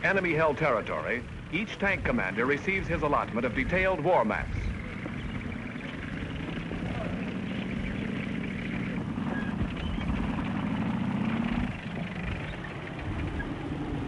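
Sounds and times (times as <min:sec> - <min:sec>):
tank engines running: 0:00.0 - 0:14.0.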